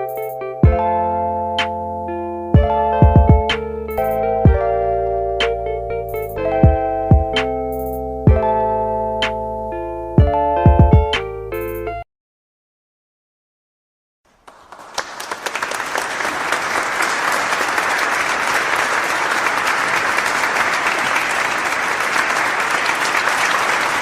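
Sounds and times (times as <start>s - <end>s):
crowd applause: 14.4s - 24.0s.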